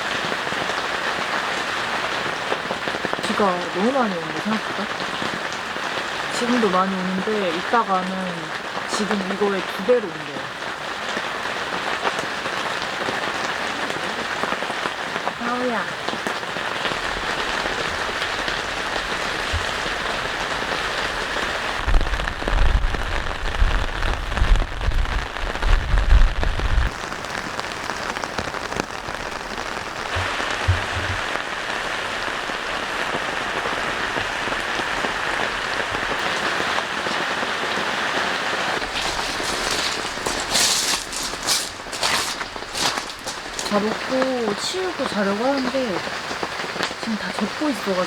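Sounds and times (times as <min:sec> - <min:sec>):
heavy rain pouring: 0:00.0 - 0:48.0
low rumbling: 0:29.2 - 0:31.8.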